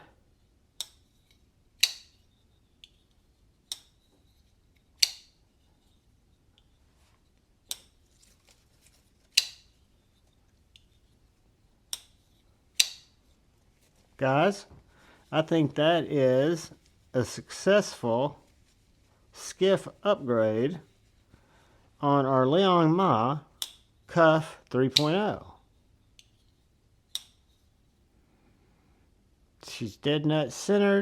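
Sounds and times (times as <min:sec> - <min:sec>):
folding knife clicking open and shut: 0:01.8 - 0:02.2, 0:05.0 - 0:05.4, 0:09.3 - 0:09.7, 0:12.8 - 0:13.1.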